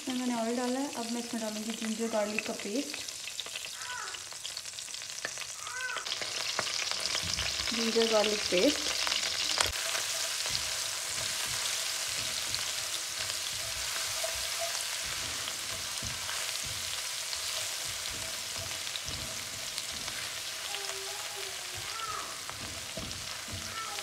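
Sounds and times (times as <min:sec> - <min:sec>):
paste sizzling in oil: 0:00.0 - 0:24.0
spatula scraping a pan: 0:06.2 - 0:24.0.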